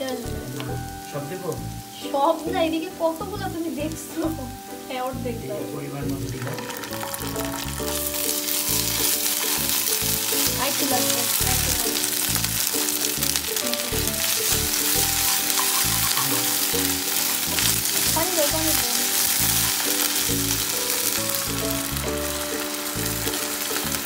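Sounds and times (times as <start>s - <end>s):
onions sizzling in hot oil: 0.0s - 24.0s
wooden spatula stirring: 6.4s - 24.0s.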